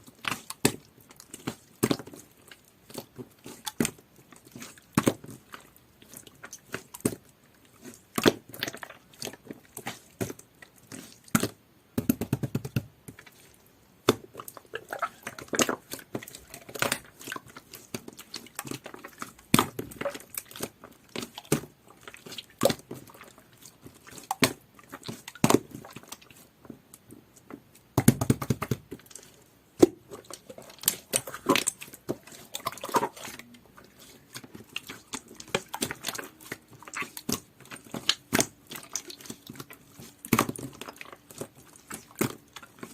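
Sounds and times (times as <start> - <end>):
slime squelching: 0.0 - 42.9
slime popping and crackling: 28.0 - 42.9.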